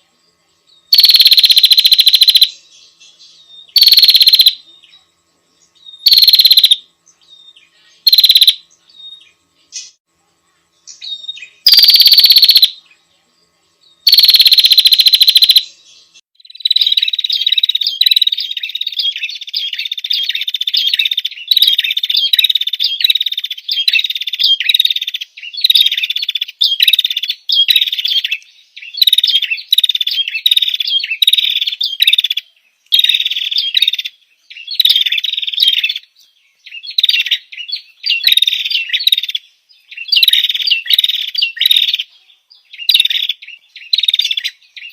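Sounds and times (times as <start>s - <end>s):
bird chattering call: 0.9s - 2.5s, 3.8s - 4.6s, 6.0s - 6.8s, 8.0s - 8.6s, 11.7s - 12.8s, 14.1s - 15.6s, 16.7s - 28.3s.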